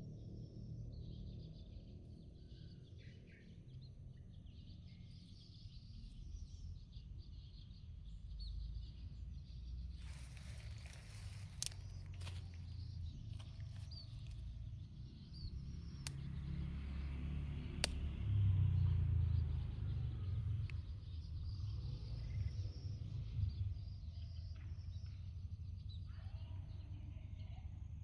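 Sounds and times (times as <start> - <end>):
faint bird chirps: 0.6 - 17.2
sharp clicks: 15.6 - 16.8, 17.7 - 18.2.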